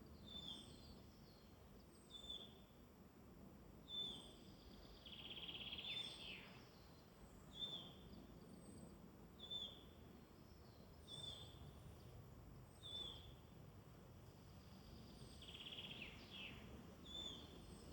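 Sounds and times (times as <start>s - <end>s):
soft steady hiss: 0.0s - 17.9s.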